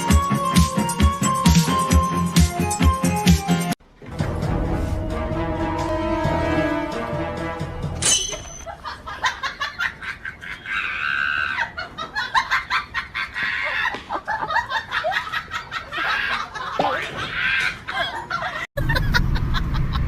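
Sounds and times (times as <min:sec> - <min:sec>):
music: 0:00.0 - 0:08.1.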